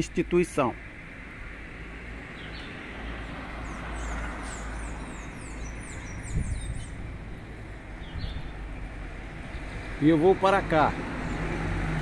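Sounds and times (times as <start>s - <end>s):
city street noise: 0.0s - 12.0s
bird singing whistled notes: 3.7s - 7.0s.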